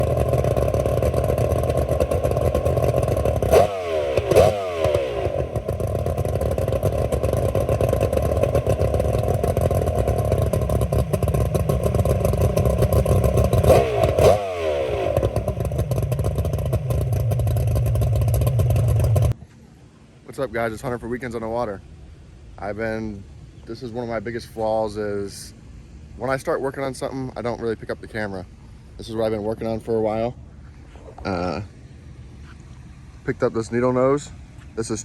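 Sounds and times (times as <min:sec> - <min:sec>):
outboard engine idling: 0:00.0 - 0:35.0.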